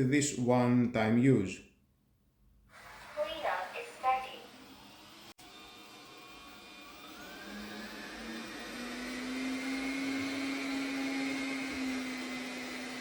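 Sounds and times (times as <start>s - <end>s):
robot vacuum motor whine: 2.7s - 13.0s.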